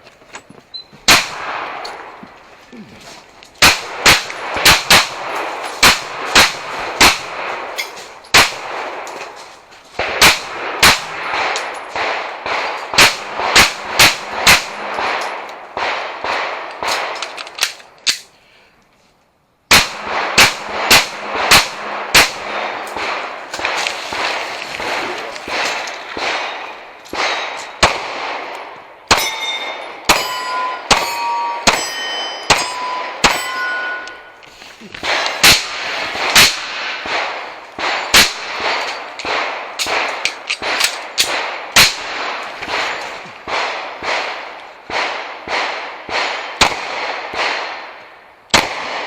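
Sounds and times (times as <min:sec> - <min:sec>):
pistol shots: 0:01.1 - 0:02.2, 0:03.6 - 0:09.4, 0:10.0 - 0:18.2, 0:19.7 - 0:49.0
bullets clanging on steel targets: 0:03.8 - 0:09.6, 0:10.9 - 0:15.6, 0:19.9 - 0:47.5.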